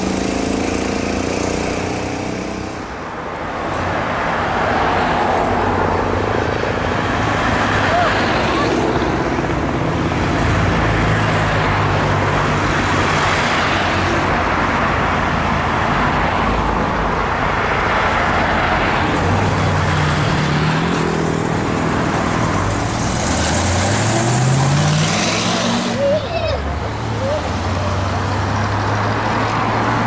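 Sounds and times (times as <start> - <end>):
road traffic engines: 0.0 - 30.0
car accelerating: 20.0 - 30.0.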